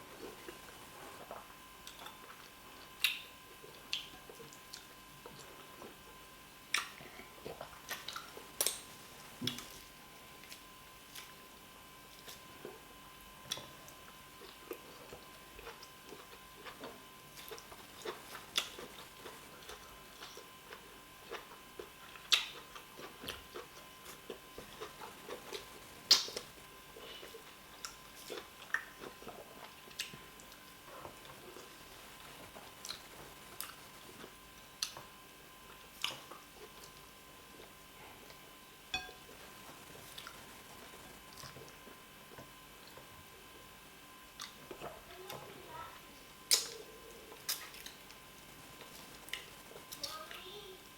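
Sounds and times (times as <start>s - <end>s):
wet chewing and lip smacks: 1.3s - 5.5s, 13.5s - 26.5s, 27.2s - 31.7s, 44.4s - 45.0s.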